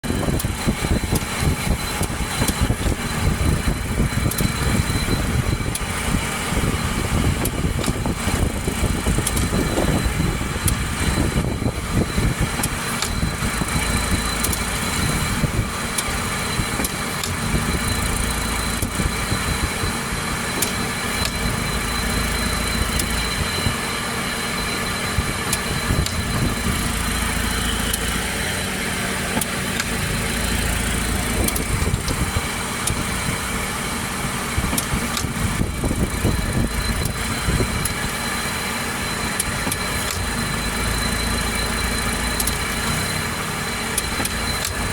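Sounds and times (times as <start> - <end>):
car engine idling: 0.0 - 44.9
clicks: 29.3 - 33.1.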